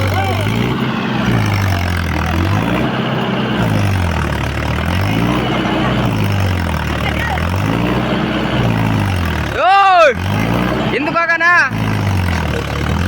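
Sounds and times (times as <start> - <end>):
tractor diesel engine revving: 0.0 - 13.0.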